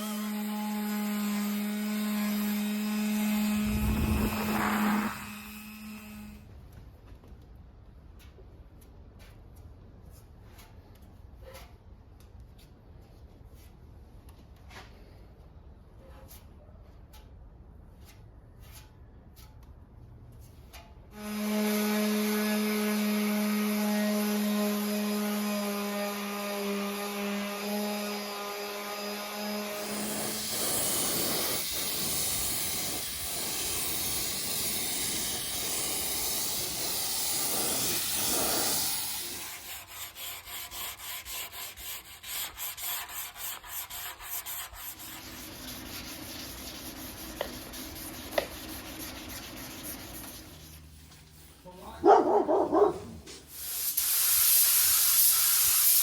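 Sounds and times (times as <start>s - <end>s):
power tool humming: 0.0s - 6.4s, 24.4s - 39.7s
rhythmic rubbing strokes: 3.2s - 5.7s
loud hissing: 3.4s - 5.9s, 29.8s - 39.6s.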